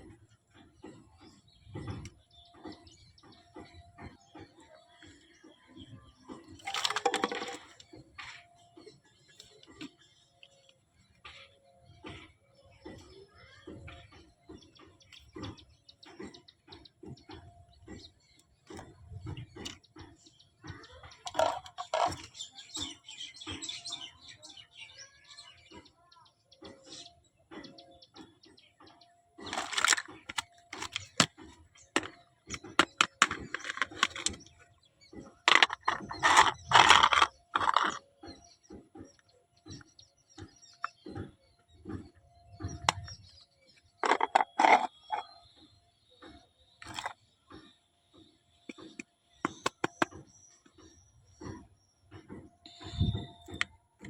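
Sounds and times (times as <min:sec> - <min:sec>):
birds chirping and calling: 0:00.0 - 0:54.0
toy pieces clicking and tapping: 0:06.6 - 0:07.8, 0:21.2 - 0:22.3, 0:29.5 - 0:34.5, 0:35.4 - 0:38.0, 0:44.0 - 0:45.3, 0:48.7 - 0:50.1
packaging rustling: 0:29.5 - 0:30.1.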